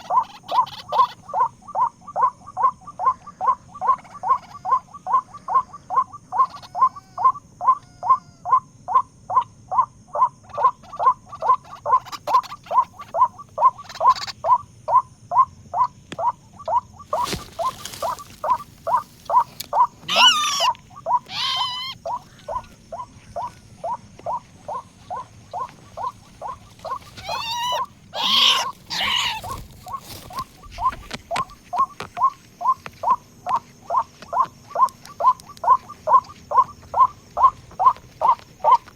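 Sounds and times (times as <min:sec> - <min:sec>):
harsh bird calls: 0:00.0 - 0:38.9
bird calling short notes: 0:17.1 - 0:32.8.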